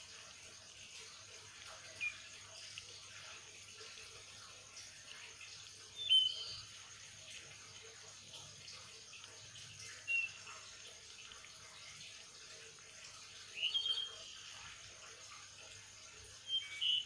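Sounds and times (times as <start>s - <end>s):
high bird chirps: 6.0s - 6.6s, 13.5s - 14.4s, 16.4s - 17.0s.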